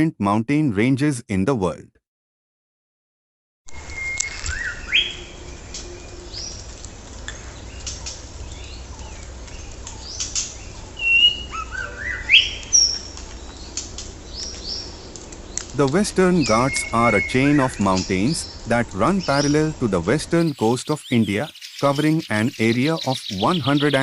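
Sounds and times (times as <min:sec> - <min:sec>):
birds chirping and whistling: 0:03.7 - 0:06.7, 0:07.3 - 0:24.0
low steady rumble: 0:12.6 - 0:20.4.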